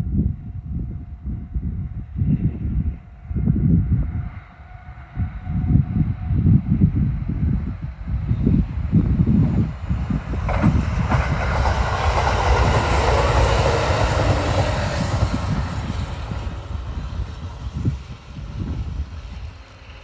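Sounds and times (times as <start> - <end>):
wind buffeting microphone: 0.0 - 20.0
electric train passing: 0.1 - 20.0.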